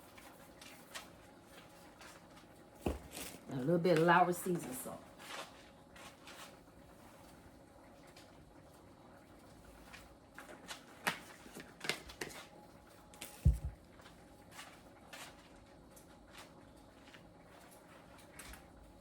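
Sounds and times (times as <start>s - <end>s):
heavy low thump: 13.5s - 13.8s.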